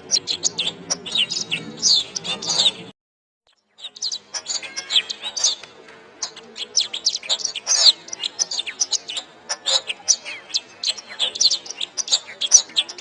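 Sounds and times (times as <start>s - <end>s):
canary singing: 0.0s - 2.9s, 3.5s - 13.0s.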